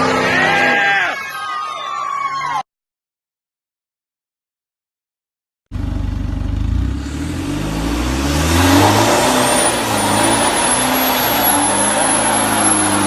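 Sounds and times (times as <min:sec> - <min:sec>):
diesel truck engine accelerating: 0:05.7 - 0:13.0
thin high whistle: 0:09.5 - 0:13.0.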